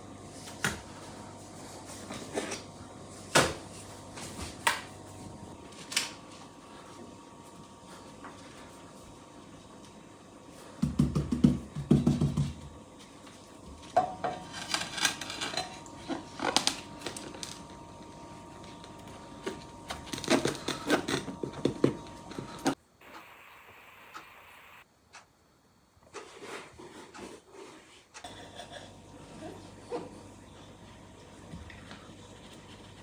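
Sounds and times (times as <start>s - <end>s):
faint steady hum: 12.5s - 26.4s.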